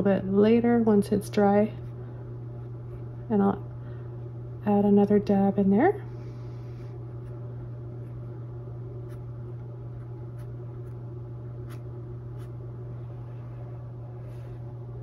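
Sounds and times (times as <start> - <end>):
low electrical hum: 0.0 - 15.0
paintbrush on canvas: 11.6 - 12.6.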